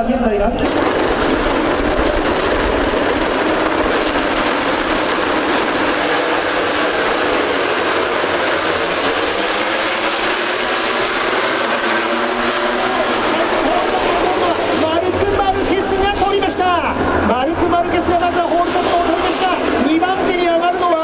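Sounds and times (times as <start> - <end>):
racing motorcycles at high revs: 0.6 - 17.2.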